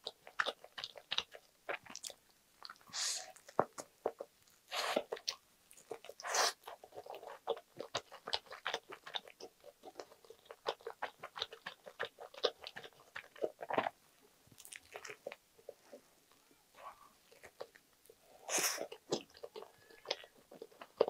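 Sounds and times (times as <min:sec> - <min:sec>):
chewing with crackling crunches: 0:00.0 - 0:21.0.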